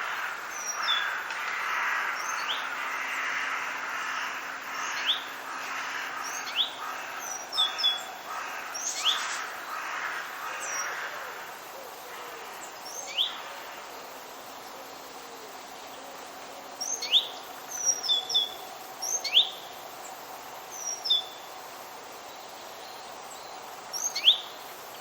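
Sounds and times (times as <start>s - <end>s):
birds chirping: 4.7s - 11.2s.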